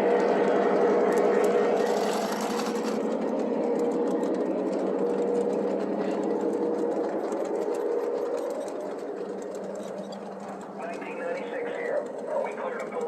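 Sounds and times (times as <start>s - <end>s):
wheels rolling on track: 0.0s - 13.0s
model train motor whine: 0.6s - 3.3s.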